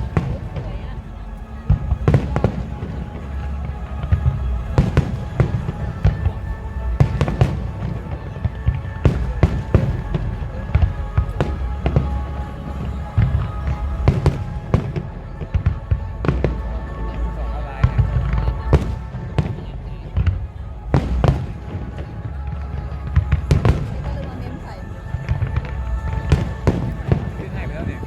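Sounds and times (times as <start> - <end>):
low rumble: 0.0 - 28.0
music playing: 0.0 - 28.0
fireworks bangs: 1.6 - 24.7, 25.3 - 28.0.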